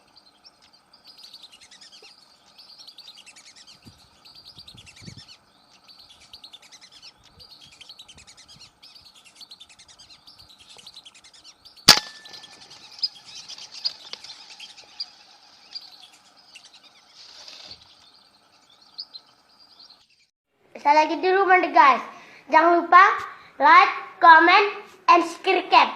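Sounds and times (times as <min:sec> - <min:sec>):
birds chirping: 0:00.0 - 0:20.3
sharp gunshot: 0:11.9 - 0:12.6.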